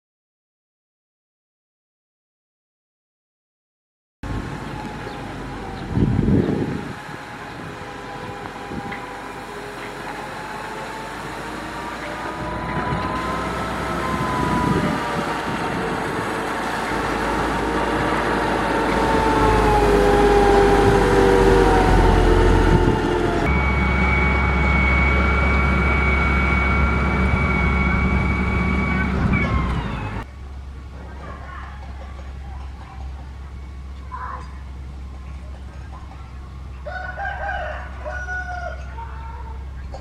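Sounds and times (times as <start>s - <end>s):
diesel engine under load: 4.2s - 40.0s
steady high whine: 4.3s - 30.8s.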